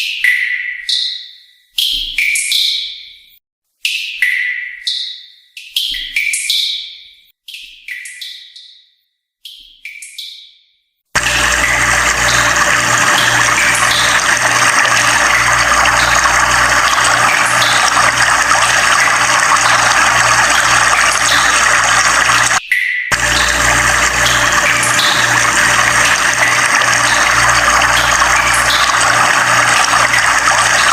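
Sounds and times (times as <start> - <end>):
rushing water: 11.2 - 30.9.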